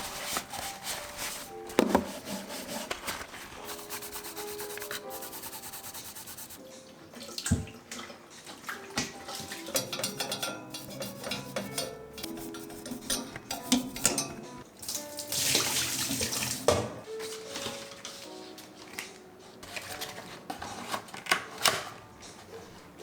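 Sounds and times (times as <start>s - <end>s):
scrubbing kitchen surface: 0.0s - 6.6s, 9.4s - 14.1s
soft background music: 0.0s - 23.0s.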